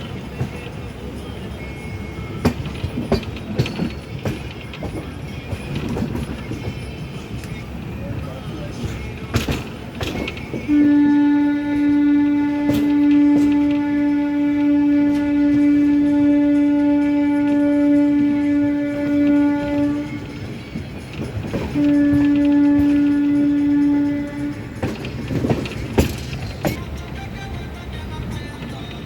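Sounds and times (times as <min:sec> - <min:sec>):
locomotive horn blasts: 0:08.8 - 0:29.0.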